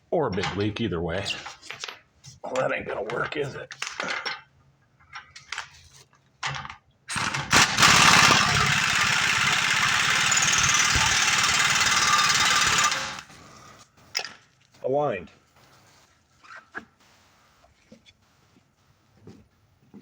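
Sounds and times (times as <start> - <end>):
impact wrench hammering: 7.1 - 13.3.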